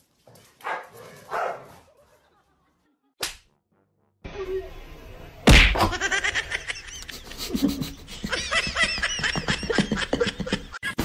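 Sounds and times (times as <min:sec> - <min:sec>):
person laughing high-pitched: 0:05.9 - 0:11.0.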